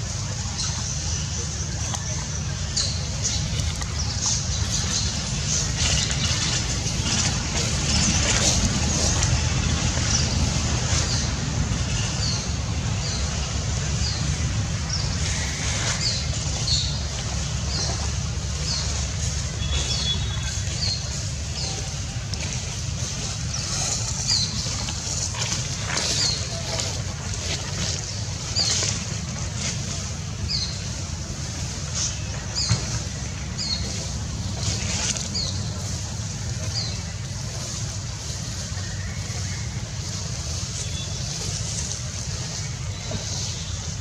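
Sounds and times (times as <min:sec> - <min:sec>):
steady low rumble: 0:00.0 - 0:44.0.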